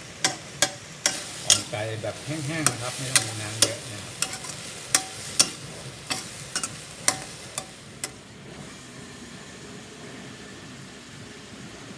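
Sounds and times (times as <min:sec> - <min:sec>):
spatula scraping a pan: 0:00.0 - 0:08.2
frying sizzle: 0:00.0 - 0:11.9.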